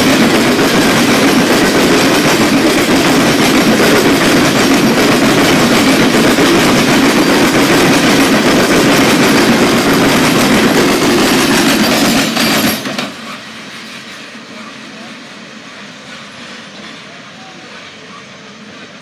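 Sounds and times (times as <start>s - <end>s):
freight train wheels on rails: 0.0s - 19.0s.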